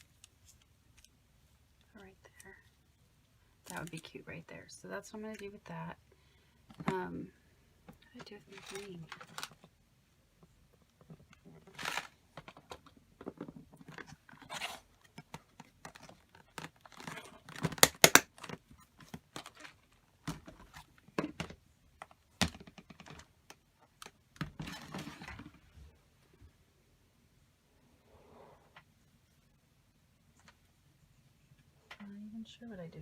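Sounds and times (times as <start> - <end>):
paper rustling and crinkling: 8.4 - 9.7, 11.0 - 21.1
small items clicking and tapping: 15.0 - 24.5.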